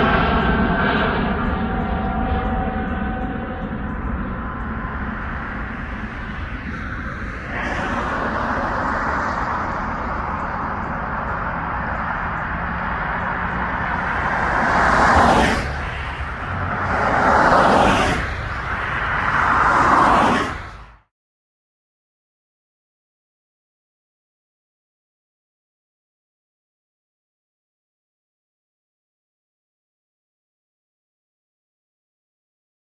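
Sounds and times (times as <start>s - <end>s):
whooshing swells: 0.0s - 20.9s
distant jet rumbling: 0.0s - 21.0s.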